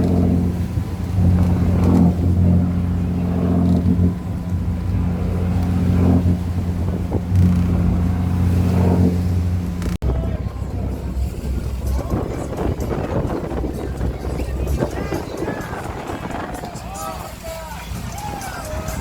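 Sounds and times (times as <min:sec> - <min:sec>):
boat engine droning: 0:00.0 - 0:19.0
rushing noise: 0:00.0 - 0:19.0.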